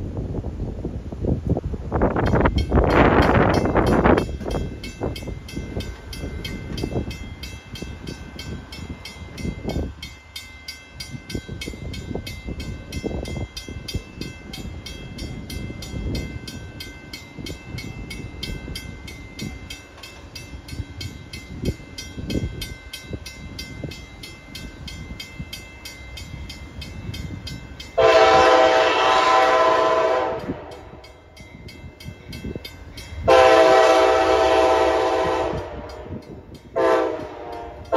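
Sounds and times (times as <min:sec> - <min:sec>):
wind buffeting microphone: 0:00.0 - 0:37.9
train horn blast: 0:28.0 - 0:31.0, 0:33.3 - 0:36.2, 0:36.8 - 0:37.9.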